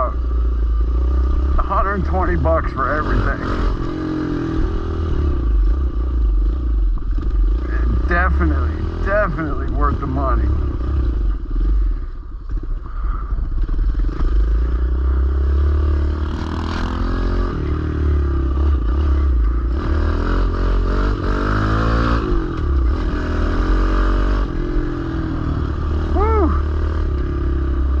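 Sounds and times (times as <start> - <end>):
small motorbike engine revving: 12.9 - 28.0.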